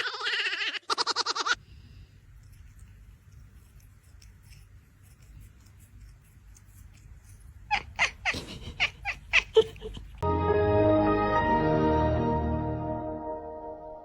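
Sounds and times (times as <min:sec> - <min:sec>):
cat meowing: 0:07.7 - 0:09.7.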